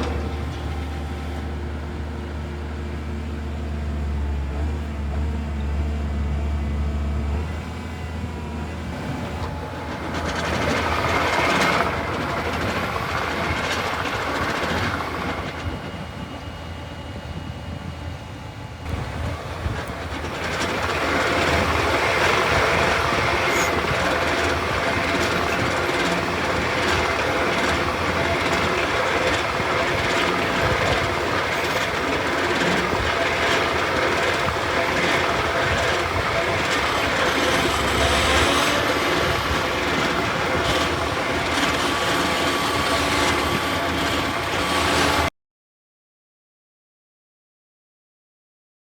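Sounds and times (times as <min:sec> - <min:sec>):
baler mechanical clatter: 0:00.0 - 0:01.6, 0:18.9 - 0:45.3.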